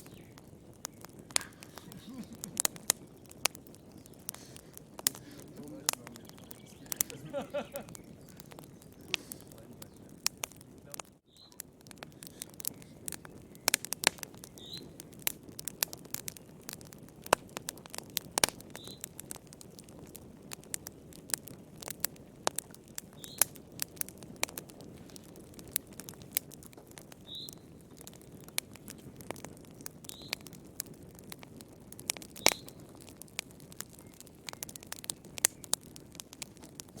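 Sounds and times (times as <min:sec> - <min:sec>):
wood fire crackling: 0:00.0 - 0:37.0.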